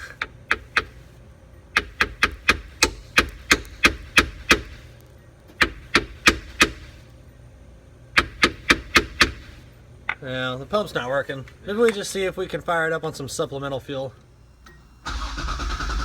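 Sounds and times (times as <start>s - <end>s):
hammer knocking on metal pump: 1.8s - 4.8s, 5.6s - 6.9s, 8.2s - 9.5s.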